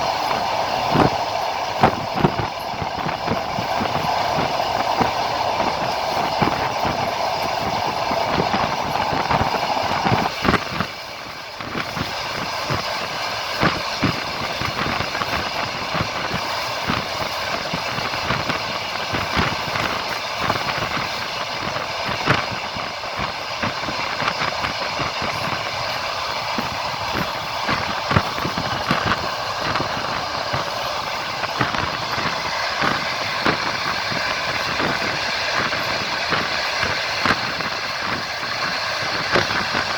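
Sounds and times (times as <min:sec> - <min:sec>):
loud rushing noise: 0:00.0 - 0:13.2
train wheels clacking on rails: 0:00.0 - 0:39.9.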